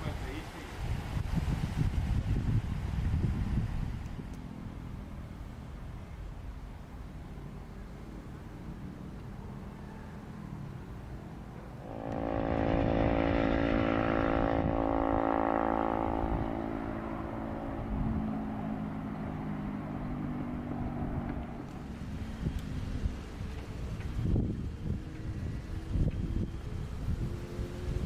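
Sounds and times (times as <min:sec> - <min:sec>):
low hum: 0:11.7 - 0:27.4
motor vehicle driving past: 0:11.8 - 0:28.0.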